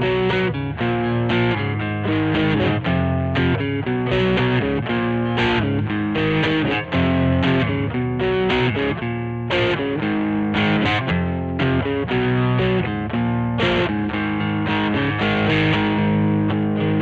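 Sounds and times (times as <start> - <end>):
distorted electric guitar riff: 0.0 - 17.0.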